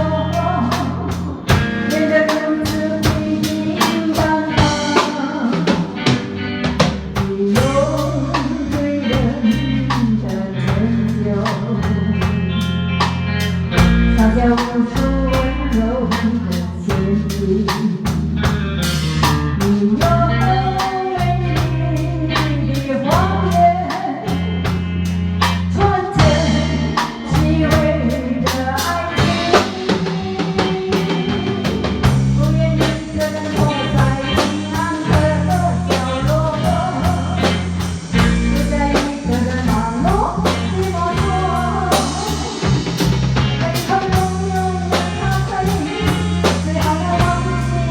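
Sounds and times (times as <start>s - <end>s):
bass guitar: 0.0s - 47.9s
drum kit steady beat: 0.0s - 47.9s.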